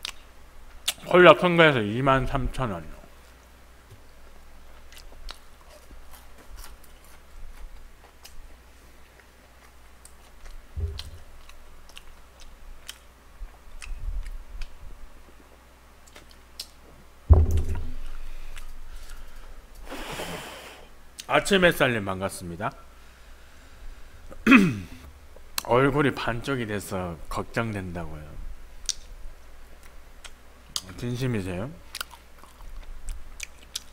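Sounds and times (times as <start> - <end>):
chewing fried chicken: 4.6 - 16.8, 31.9 - 33.9
dull thump: 10.8 - 11.2, 17.3 - 18.2.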